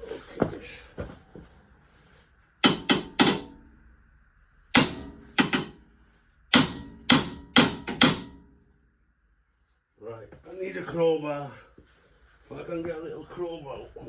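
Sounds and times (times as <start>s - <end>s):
hammer striking car part: 2.6s - 3.8s, 4.7s - 5.9s, 6.5s - 8.6s.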